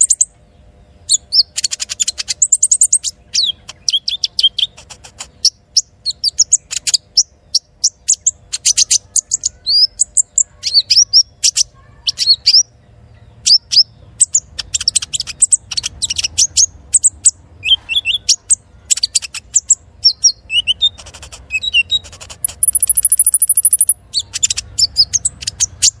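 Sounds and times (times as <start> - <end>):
sunbird singing: 0.0 - 26.0
very high fast bird trill: 13.4 - 26.0.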